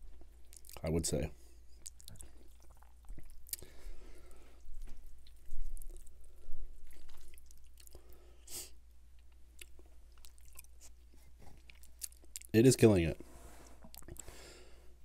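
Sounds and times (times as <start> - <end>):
wet chewing and lip-smacking: 0.0 - 0.8, 1.6 - 3.9, 4.6 - 8.2, 9.0 - 12.5, 13.8 - 14.2.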